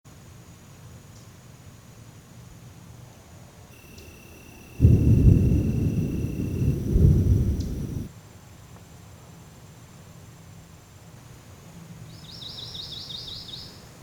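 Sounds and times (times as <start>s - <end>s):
deep rumble: 4.8s - 8.1s.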